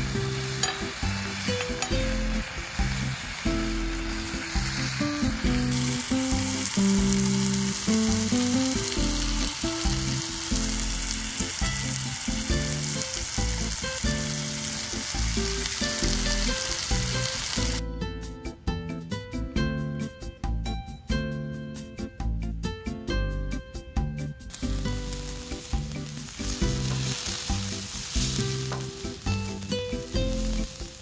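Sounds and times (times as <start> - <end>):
chicken sizzling in a frying pan: 0.0 - 17.8, 24.5 - 31.0
low background music: 0.0 - 31.0.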